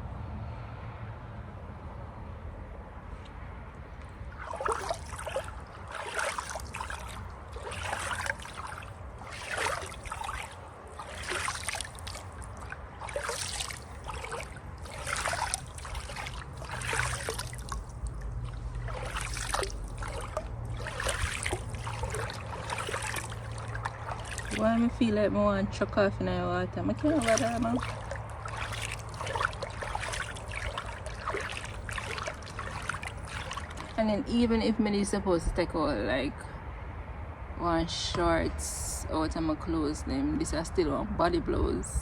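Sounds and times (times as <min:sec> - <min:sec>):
pool water splashing: 0:04.0 - 0:34.9.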